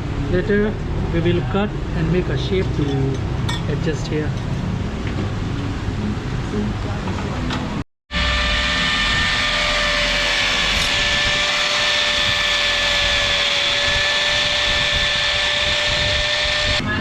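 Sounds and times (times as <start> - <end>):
electric power tool whining: 8.1 - 16.8.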